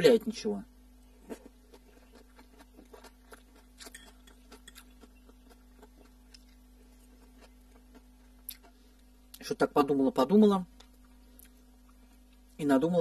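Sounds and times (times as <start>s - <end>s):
steady low hum: 0.0s - 13.0s
person chewing noodles: 1.0s - 9.4s.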